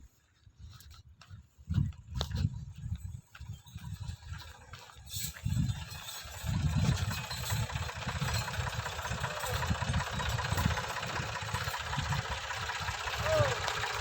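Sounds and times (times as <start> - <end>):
tractor diesel engine chugging: 3.4 - 14.0.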